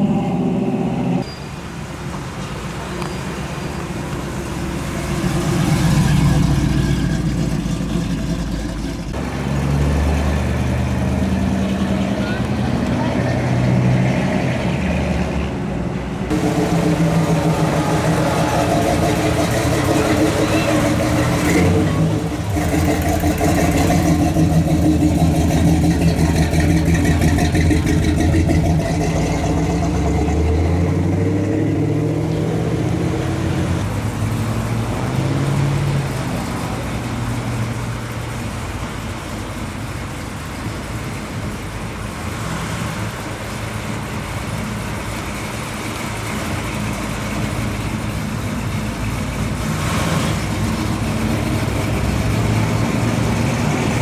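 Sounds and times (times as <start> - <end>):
car engine running: 0.0 - 1.2, 16.3 - 30.4
street traffic: 0.0 - 54.0
car engine passing: 4.3 - 38.6.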